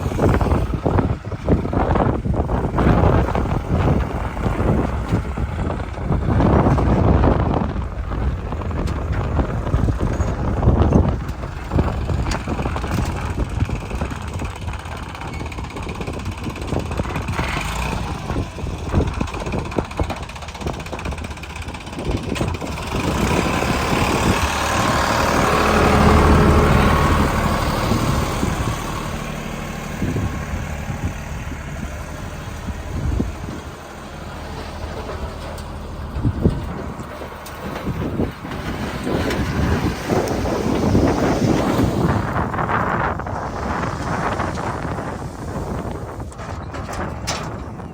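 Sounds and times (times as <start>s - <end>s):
heavy diesel engine running: 0.0s - 47.9s
machinery clatter: 0.0s - 47.9s.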